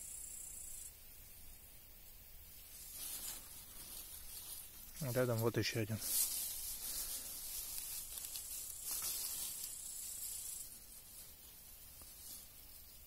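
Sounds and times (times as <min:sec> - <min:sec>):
rustling grass and leaves: 0:00.0 - 0:13.0
scrape on leaves: 0:02.6 - 0:13.0.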